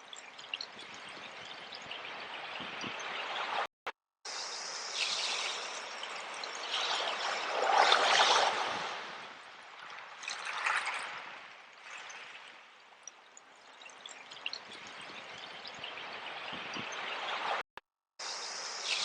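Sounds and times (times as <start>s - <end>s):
sea waves washing in: 4.3s - 12.4s.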